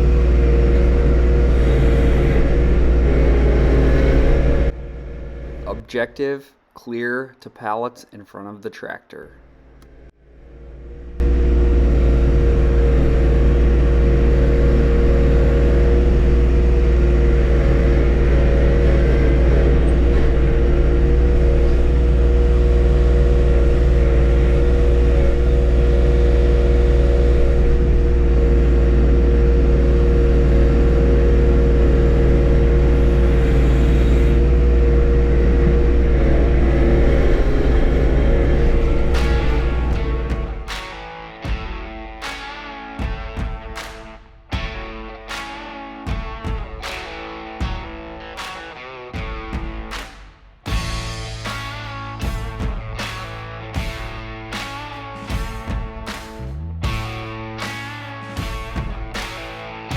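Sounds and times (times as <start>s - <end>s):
tractor diesel engine running: 0.0s - 6.0s, 9.4s - 40.7s.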